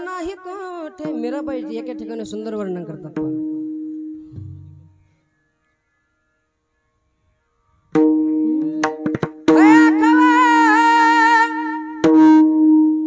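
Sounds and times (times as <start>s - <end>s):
harmonium drone: 0.0s - 13.0s
hand drum strokes: 4.2s - 5.2s, 8.0s - 10.0s
person singing long wavering note: 8.2s - 13.0s.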